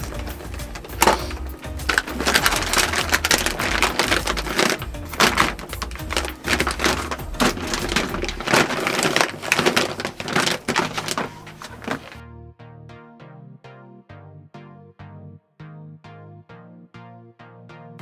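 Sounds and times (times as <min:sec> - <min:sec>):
sack crinkling: 0:00.0 - 0:12.2
background music: 0:00.0 - 0:18.0.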